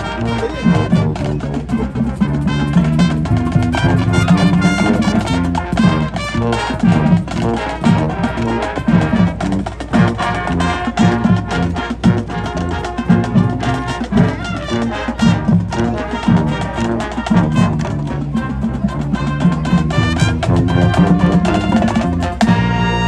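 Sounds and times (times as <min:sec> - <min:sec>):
drums and percussion: 0:00.0 - 0:23.0
marching band brass: 0:00.0 - 0:23.0.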